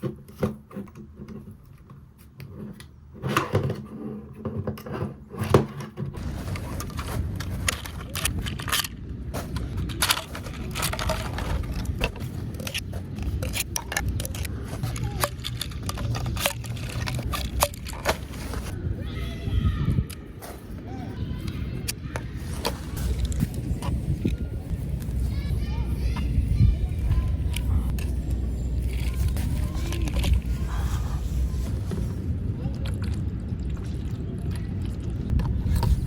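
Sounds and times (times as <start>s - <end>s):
plastic parts clicking and knocking: 2.7s - 18.8s
low outdoor rumble: 6.1s - 36.0s.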